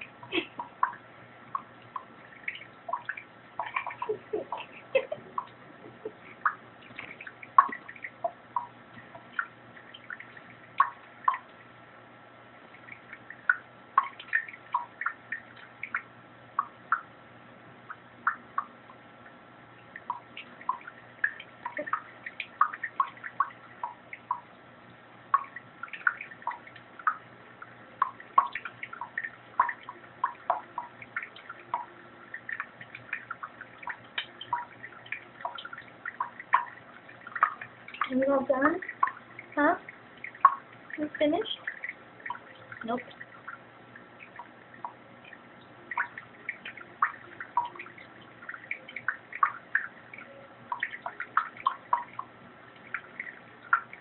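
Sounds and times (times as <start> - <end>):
bird splashing water in sink: 0.0 - 11.7, 12.6 - 17.1, 19.9 - 24.6, 25.3 - 54.0.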